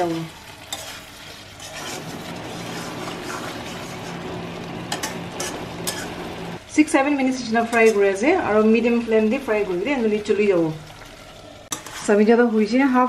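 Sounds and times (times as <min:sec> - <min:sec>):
chicken sizzling in wok: 0:00.0 - 0:13.0
spatula scraping and tapping pan: 0:00.7 - 0:04.2, 0:04.9 - 0:06.3, 0:11.7 - 0:12.1.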